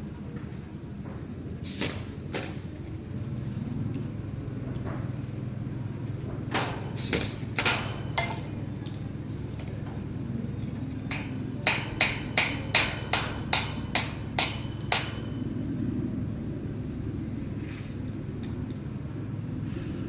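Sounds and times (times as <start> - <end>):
hammer striking metal spikes: 6.5 - 8.7, 11.1 - 15.6.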